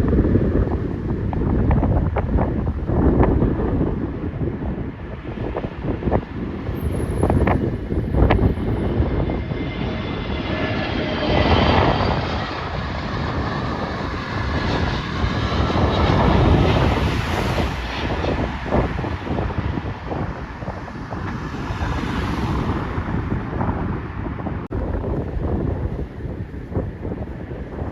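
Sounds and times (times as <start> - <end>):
jet engines rushing: 0.0 - 27.9
wind buffeting microphone: 0.0 - 27.9.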